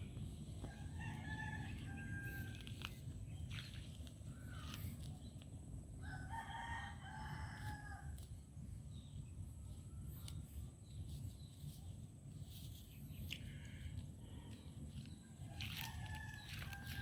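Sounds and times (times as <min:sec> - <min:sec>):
rooster crowing: 0:00.6 - 0:02.9, 0:06.0 - 0:08.2, 0:15.6 - 0:17.0.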